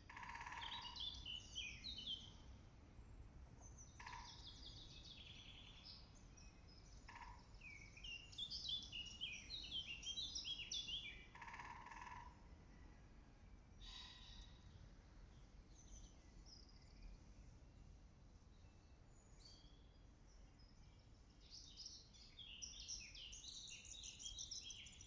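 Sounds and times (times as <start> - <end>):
songbird warbling: 4.0 - 5.4.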